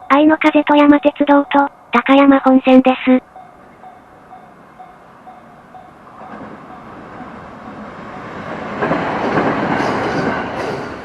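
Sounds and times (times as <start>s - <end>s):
level crossing warning bell: 0.0s - 7.3s
train wheels rumbling on rails: 0.0s - 11.0s.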